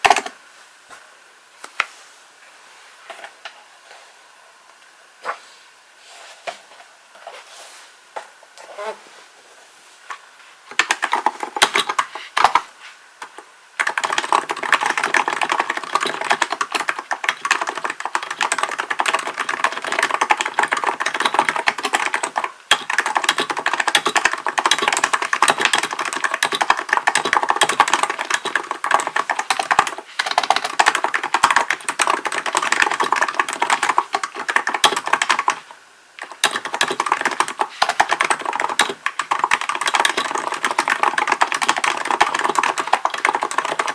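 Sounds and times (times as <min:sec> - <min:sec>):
keyboard typing: 0:00.0 - 0:00.4, 0:10.7 - 0:43.9.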